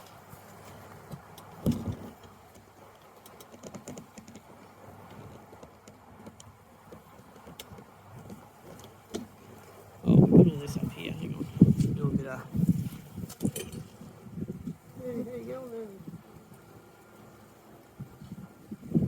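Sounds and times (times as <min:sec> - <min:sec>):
light clicks and taps: 0:00.0 - 0:09.8.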